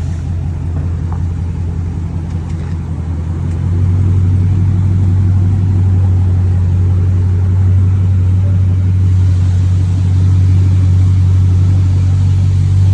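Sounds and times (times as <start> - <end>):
loud deep car exhaust drone: 0.0 - 12.9.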